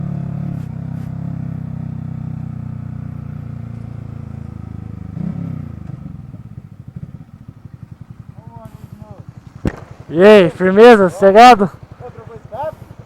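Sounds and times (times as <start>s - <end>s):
motorcycle engine running: 0.0s - 13.0s
motorcycle throttle blip: 9.2s - 10.0s.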